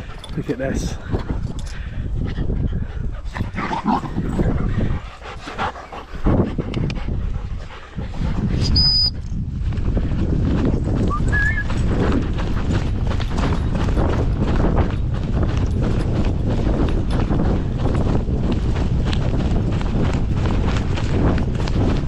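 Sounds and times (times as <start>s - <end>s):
dogs panting: 0.0s - 22.0s
running footfalls: 9.4s - 22.0s.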